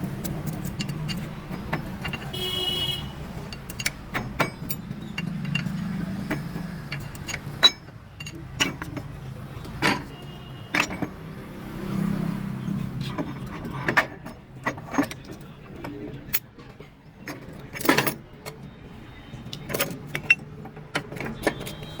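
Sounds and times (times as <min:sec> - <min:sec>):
metal gear parts clinking: 0:00.0 - 0:11.2, 0:17.2 - 0:18.6, 0:19.5 - 0:22.0.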